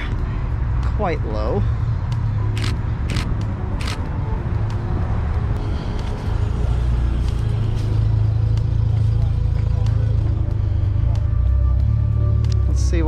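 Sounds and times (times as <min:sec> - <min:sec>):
sharp clicks: 0:02.6 - 0:04.1.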